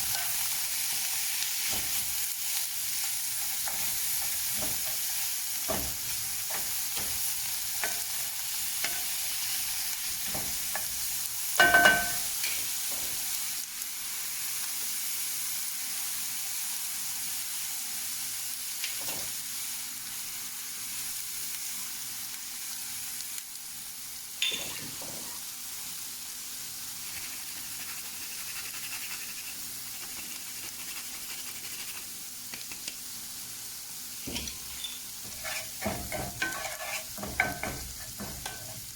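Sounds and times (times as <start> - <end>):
greens sizzling in oil: 0.0 - 38.9
metal clinking on pan: 0.1 - 0.4, 11.6 - 13.1, 24.4 - 24.8, 34.3 - 38.8
utensil scraping and tapping pan: 34.3 - 38.9.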